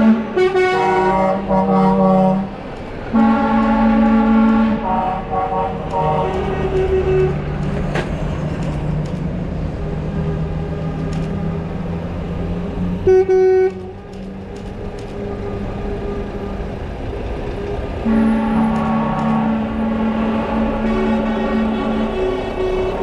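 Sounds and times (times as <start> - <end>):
loud truck horn toot: 0.0 - 7.6, 13.0 - 14.0, 18.0 - 23.0
lower truck horn: 0.0 - 8.0, 13.0 - 14.2, 17.5 - 23.0
truck engines running: 0.0 - 23.0.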